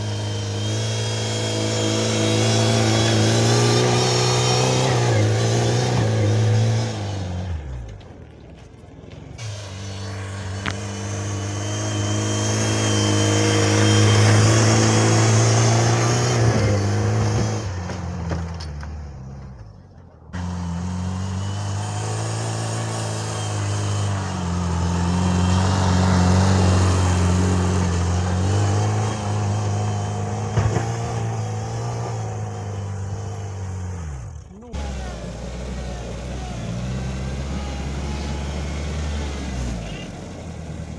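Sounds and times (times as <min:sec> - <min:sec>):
small tractor engine under load: 0:00.0 - 0:40.9.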